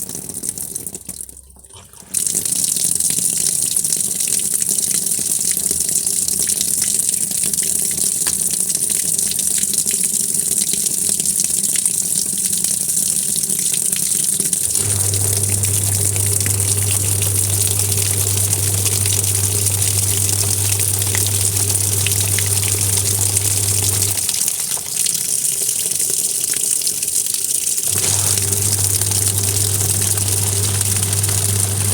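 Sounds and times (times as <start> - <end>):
water rushing into drum: 14.3 - 27.1, 27.8 - 31.9
low motor hum: 14.6 - 24.3, 27.9 - 31.9.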